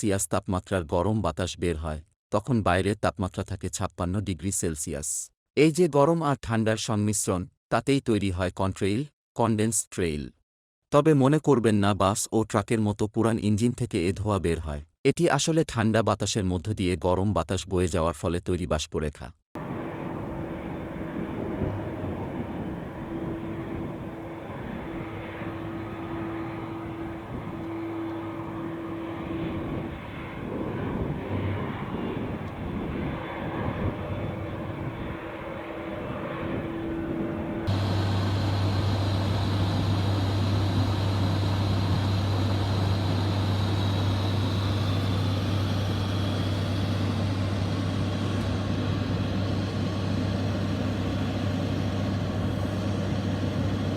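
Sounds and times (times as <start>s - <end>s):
airplane engine noise: 19.6s - 53.9s.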